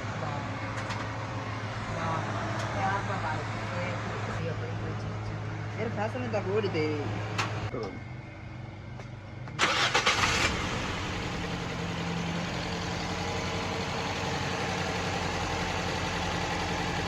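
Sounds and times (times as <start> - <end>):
car engine starting and idling: 9.6 - 17.0.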